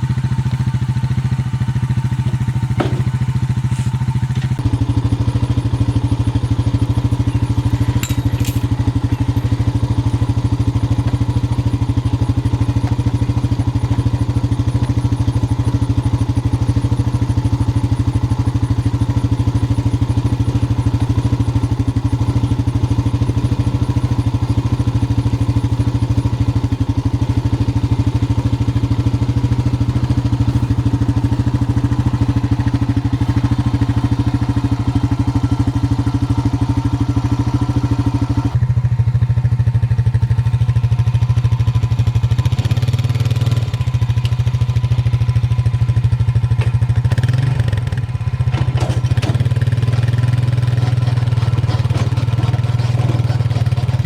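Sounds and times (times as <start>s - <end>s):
small gasoline engine running: 0.0s - 54.0s
brief rattle: 7.2s - 9.7s.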